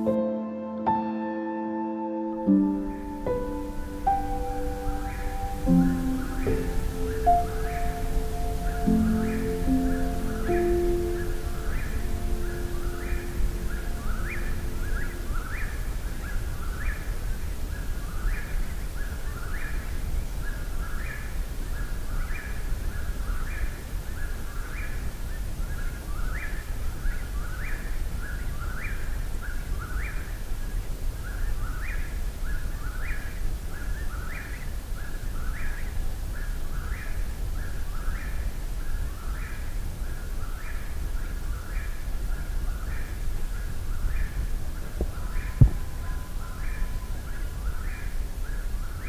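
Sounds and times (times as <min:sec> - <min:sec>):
bird singing repeated phrase: 0:02.3 - 0:19.9, 0:44.9 - 0:48.1.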